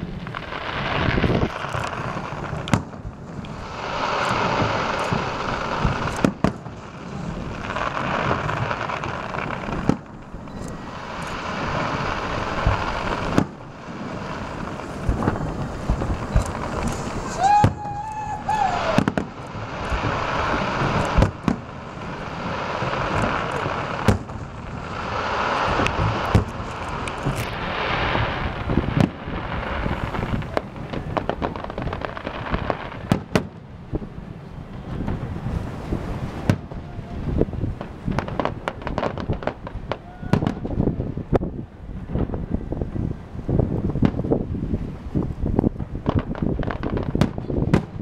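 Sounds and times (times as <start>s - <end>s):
firework shells bursting: 0.3s - 33.6s.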